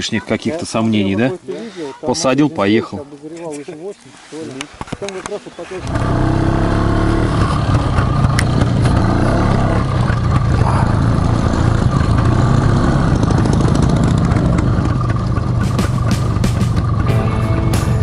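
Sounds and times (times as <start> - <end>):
motorcycle engine running: 5.8 - 18.0.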